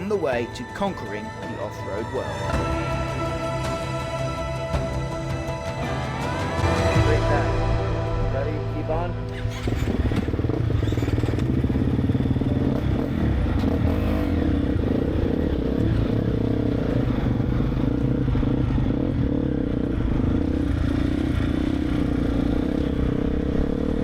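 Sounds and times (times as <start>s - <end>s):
motocross bike engine revving: 9.1s - 24.0s.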